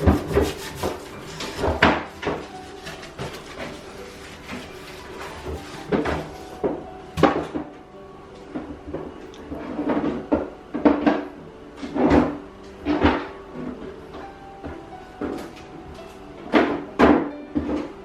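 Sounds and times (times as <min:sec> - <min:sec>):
objects knocking and scraping: 0:00.0 - 0:07.7.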